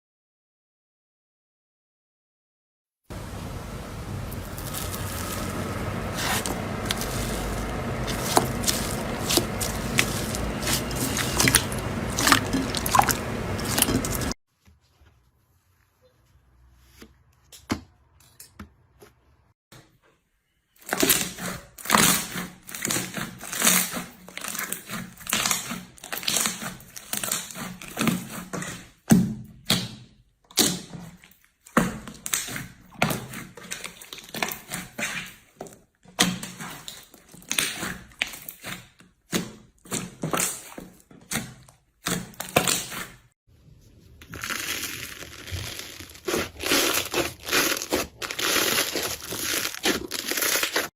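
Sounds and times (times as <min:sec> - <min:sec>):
slime crackling and popping: 0:04.3 - 0:14.4, 0:44.3 - 0:50.9.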